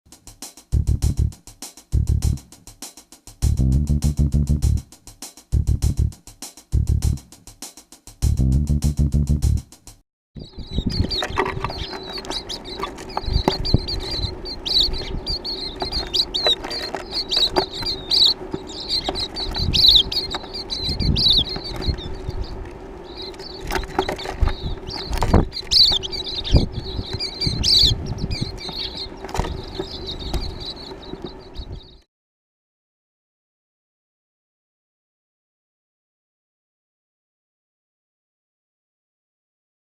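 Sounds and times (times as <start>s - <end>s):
steady low hum: 3.5s - 4.9s, 10.4s - 32.0s
small birds chirping: 10.4s - 32.0s
short thumps: 23.6s - 31.6s.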